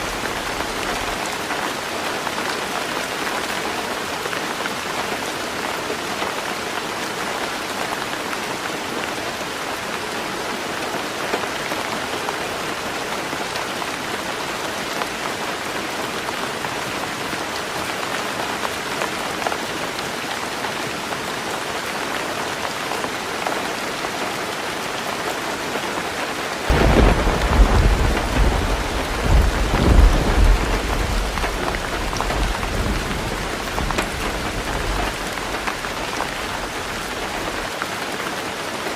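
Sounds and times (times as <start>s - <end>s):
heavy rain on a tin roof: 0.0s - 38.9s
thunder rumbling: 26.7s - 37.6s.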